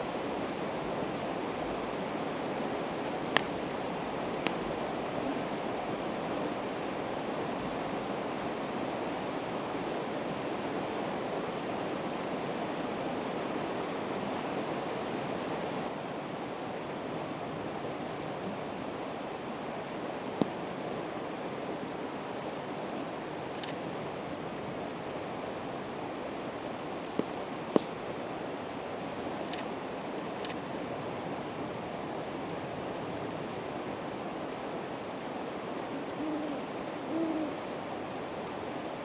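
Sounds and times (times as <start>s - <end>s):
campfire crackling and popping: 1.4s - 3.6s.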